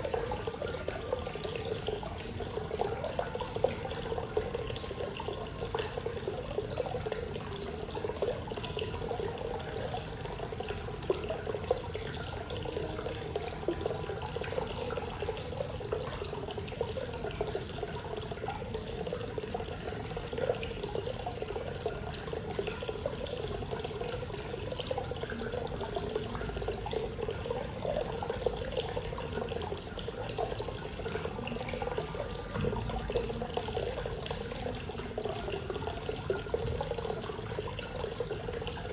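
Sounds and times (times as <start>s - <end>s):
water pouring into a bath: 0.0s - 38.9s.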